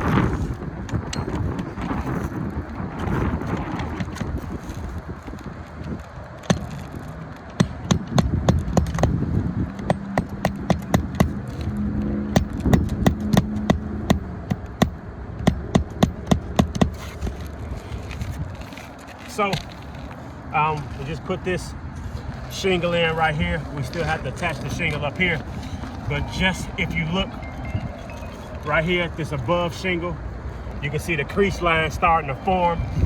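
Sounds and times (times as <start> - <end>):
hammer nailing shingle: 3.7 - 11.7, 12.3 - 20.0.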